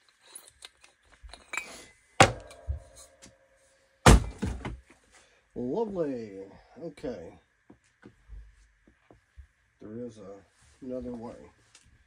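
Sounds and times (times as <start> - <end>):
metallic clanks with ringing: 1.5 - 3.4.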